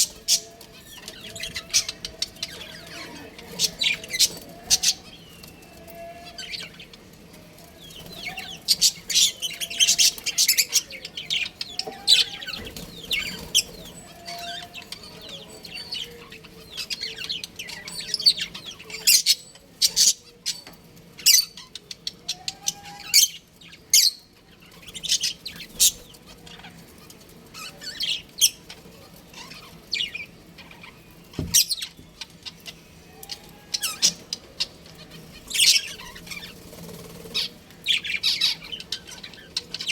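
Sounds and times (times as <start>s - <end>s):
budgerigars chirping: 33.8s - 39.9s.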